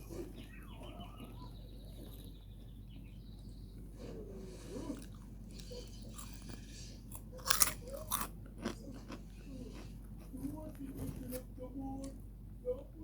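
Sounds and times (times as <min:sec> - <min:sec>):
person chewing: 0:04.0 - 0:11.0
loud crunching bites: 0:07.2 - 0:09.1.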